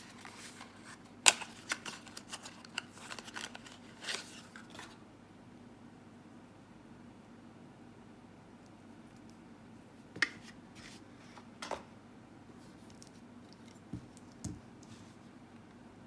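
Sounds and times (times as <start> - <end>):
packaging clicks and scrapes: 0.0 - 5.0
faint steady hum: 0.0 - 16.0.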